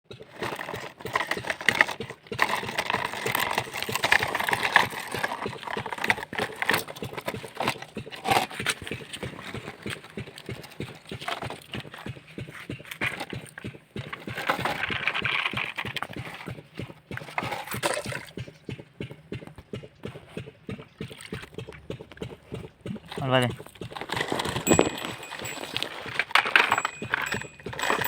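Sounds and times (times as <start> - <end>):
toys clattering: 0.3 - 16.6, 23.9 - 28.0.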